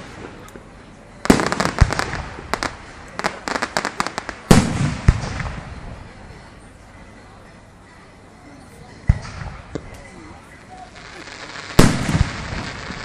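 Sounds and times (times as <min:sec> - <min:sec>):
fireworks banging and crackling: 0:01.2 - 0:06.2, 0:09.0 - 0:10.1, 0:10.8 - 0:13.0.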